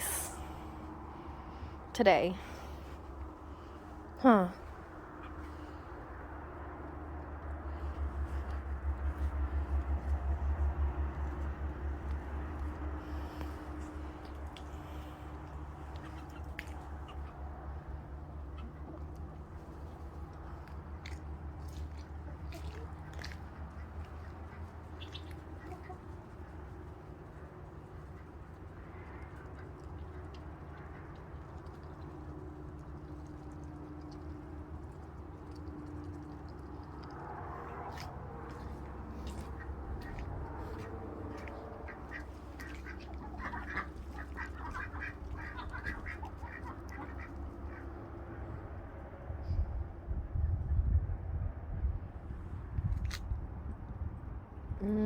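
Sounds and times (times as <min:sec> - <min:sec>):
steady low rumble: 0:00.0 - 0:55.0
ducks quacking: 0:22.4 - 0:26.5, 0:37.8 - 0:48.1.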